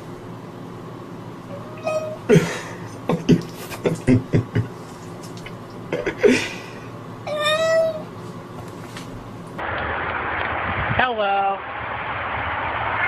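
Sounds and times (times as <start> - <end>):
cat calling: 1.5 - 2.3, 7.3 - 8.1
cat meowing: 1.5 - 2.3, 7.3 - 8.1.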